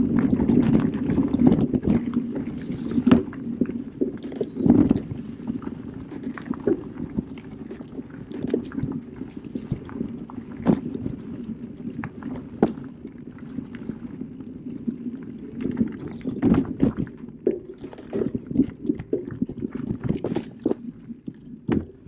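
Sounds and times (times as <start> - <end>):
bike tyre rumble on trail: 0.0 - 21.0
bike knocks and rattles: 19.9 - 22.0.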